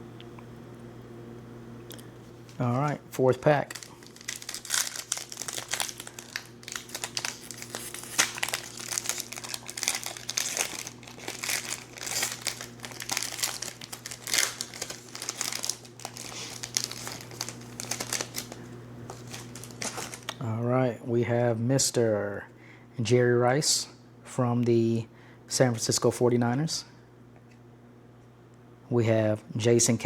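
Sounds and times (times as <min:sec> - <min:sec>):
faint electrical hum: 0:00.0 - 0:30.0
foil wrapper tearing and crinkling: 0:02.6 - 0:20.4.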